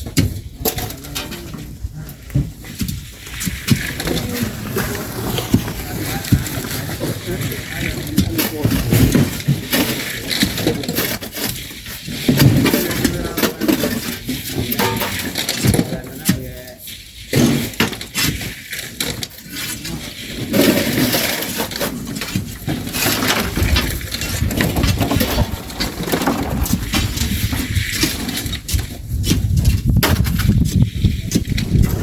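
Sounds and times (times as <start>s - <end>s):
shovels digging sand and stones: 2.2s - 32.0s
stones thrown into truck: 29.6s - 30.5s.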